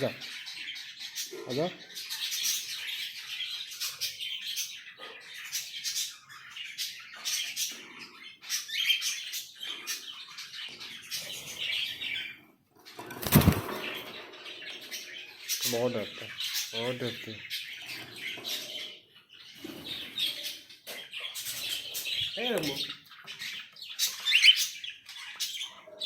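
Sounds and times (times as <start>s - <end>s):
parrots chirping: 0.0s - 26.0s
wings fluttering: 13.0s - 14.1s.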